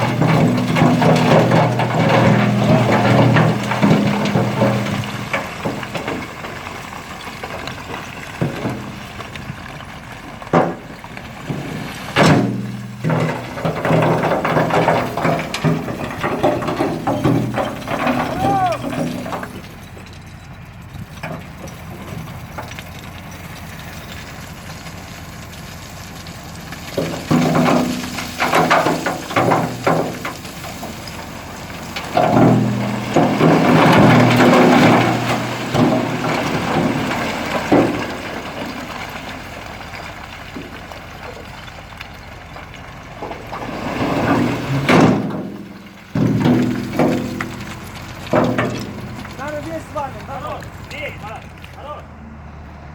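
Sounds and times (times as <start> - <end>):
brick rubble crunching: 0.0 - 52.9
heavy machinery engine rumble: 0.0 - 52.9.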